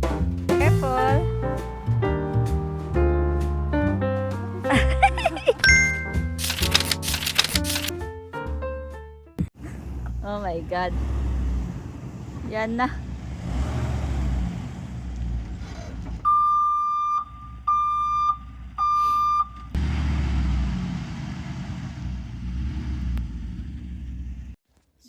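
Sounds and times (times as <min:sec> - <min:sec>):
low rumble of wind and traffic: 0:09.5 - 0:24.6
long electronic beeps: 0:16.3 - 0:19.6.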